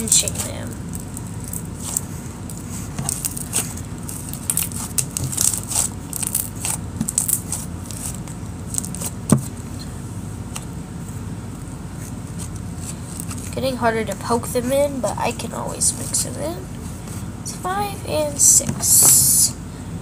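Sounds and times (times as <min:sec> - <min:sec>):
slime crackling and clicking: 0:00.2 - 0:09.1.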